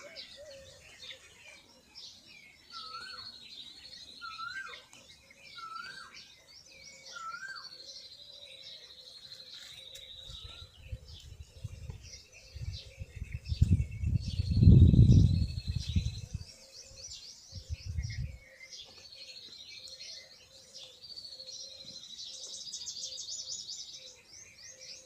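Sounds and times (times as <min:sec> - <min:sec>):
birds trilling: 0:00.0 - 0:25.0
low rumble on microphone: 0:10.3 - 0:16.5.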